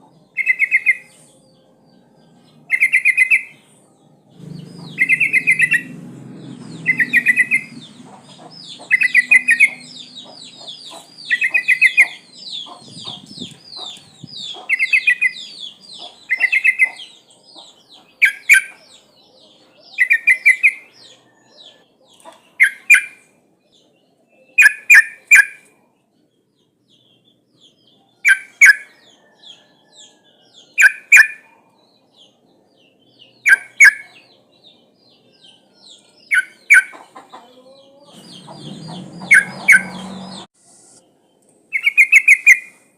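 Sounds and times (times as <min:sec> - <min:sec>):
bird twittering: 0:04.4 - 0:18.8, 0:33.4 - 0:34.2, 0:36.3 - 0:40.5, 0:41.7 - 0:42.8.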